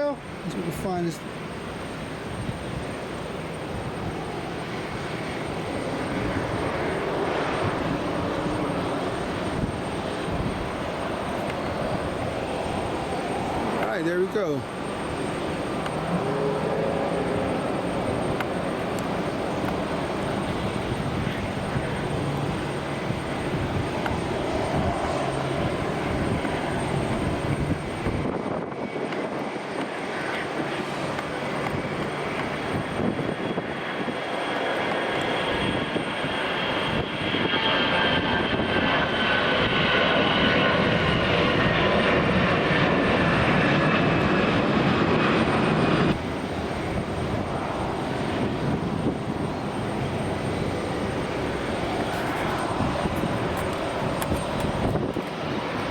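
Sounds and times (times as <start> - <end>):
jet engines whining: 0.0 - 55.9.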